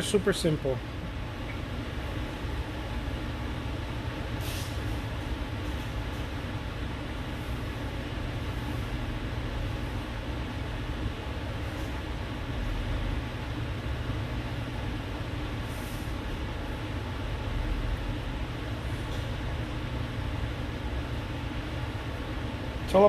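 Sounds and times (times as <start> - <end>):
hiss: 4.4 - 4.9.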